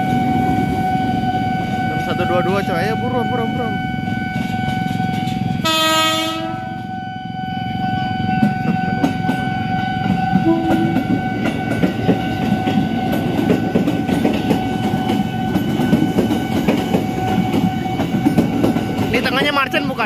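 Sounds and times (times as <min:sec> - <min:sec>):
train horn blast: 0:00.0 - 0:13.2
steady train whine: 0:00.0 - 0:20.0.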